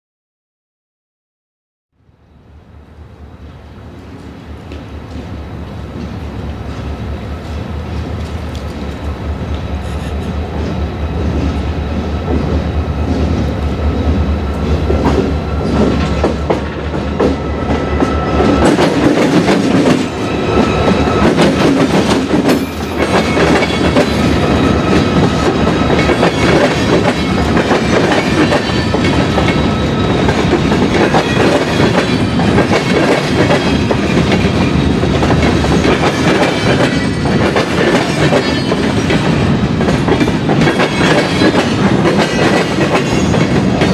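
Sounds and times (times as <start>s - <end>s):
locomotive engine drone: 2.1s - 32.0s
train wheels clicking on track: 2.5s - 43.9s.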